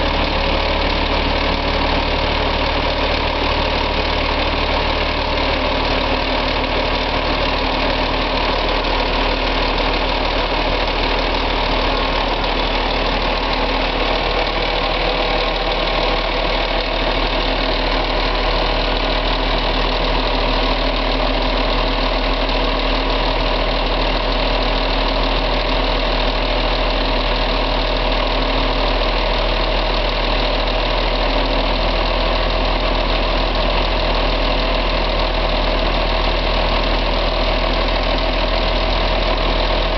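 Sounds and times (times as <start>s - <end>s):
bus diesel engine idling: 0.0s - 39.9s.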